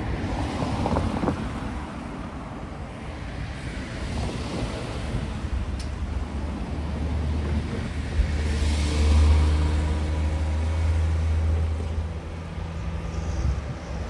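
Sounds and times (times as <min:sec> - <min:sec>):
car driving past: 0:07.2 - 0:14.0.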